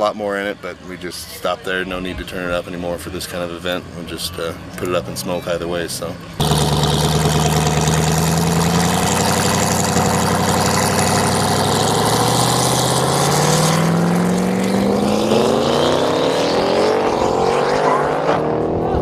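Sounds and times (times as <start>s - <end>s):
car engine accelerating: 6.4s - 19.0s.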